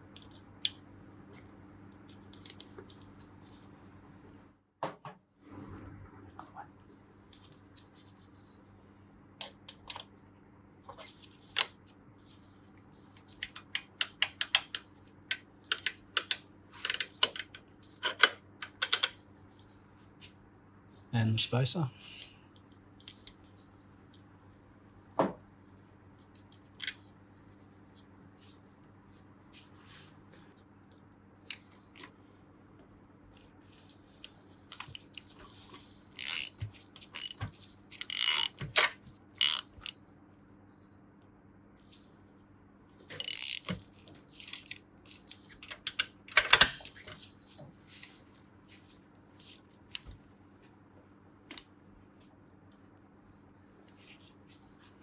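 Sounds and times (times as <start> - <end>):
small metal parts clicking: 34.2 - 35.3, 36.1 - 38.6, 39.4 - 39.9, 43.1 - 43.8, 49.9 - 50.2.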